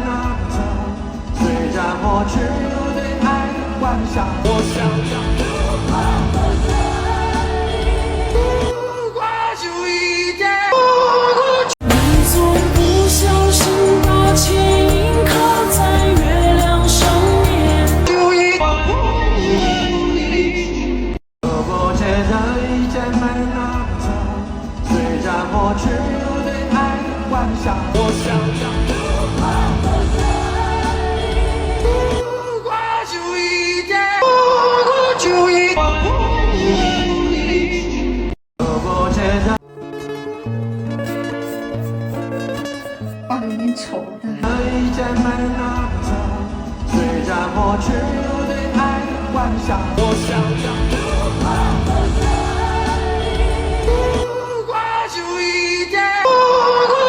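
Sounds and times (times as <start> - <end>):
band backing music: 0.0 - 8.8, 11.8 - 18.6, 19.5 - 32.8, 44.4 - 56.2
bass-heavy accompaniment: 0.0 - 8.8, 11.8 - 32.2, 44.4 - 54.4
person singing lead vocal: 0.0 - 40.5, 41.1 - 57.0.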